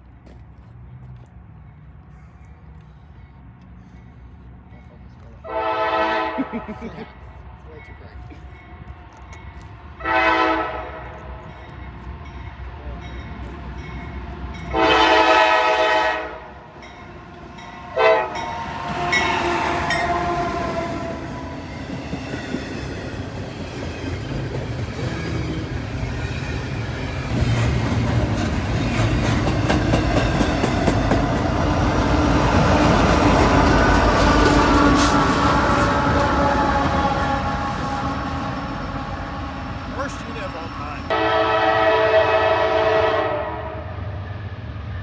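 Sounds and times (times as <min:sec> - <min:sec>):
train engine passing: 0:00.0 - 0:45.0
locomotive air horn: 0:05.4 - 0:06.6, 0:10.0 - 0:11.2, 0:14.7 - 0:16.5, 0:17.9 - 0:21.4, 0:34.1 - 0:39.8, 0:41.1 - 0:44.1.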